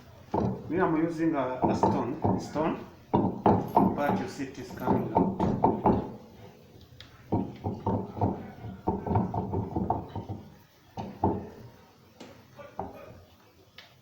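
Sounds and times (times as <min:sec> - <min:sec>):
stone knocking on metal parts: 0:00.3 - 0:00.8, 0:01.6 - 0:06.2.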